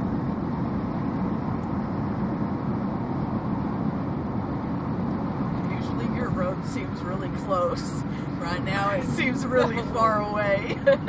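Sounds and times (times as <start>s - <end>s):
car driving heard from cabin: 0.0s - 11.0s
strong wind: 0.0s - 11.0s.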